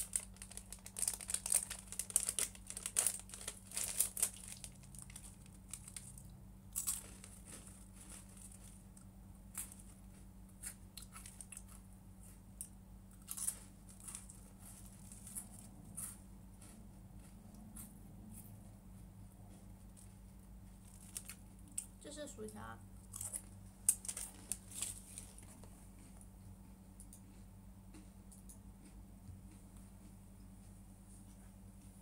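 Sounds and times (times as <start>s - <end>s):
food packaging crinkling and tearing: 0.0s - 10.0s, 10.7s - 11.8s, 13.2s - 16.2s, 20.7s - 22.0s, 23.0s - 25.7s
low electrical hum: 0.0s - 32.0s.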